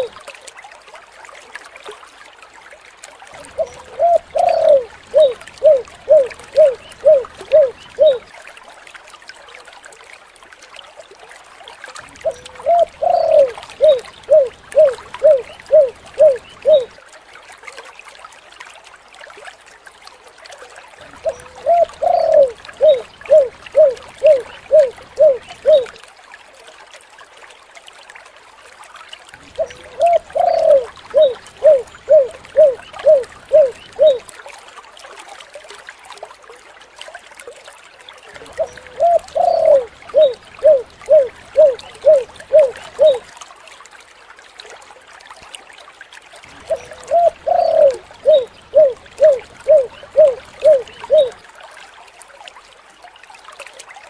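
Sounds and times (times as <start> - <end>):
dove cooing: 3.5 - 8.2, 12.2 - 17.0, 21.2 - 26.0, 29.6 - 34.2, 38.5 - 43.3, 46.7 - 51.4.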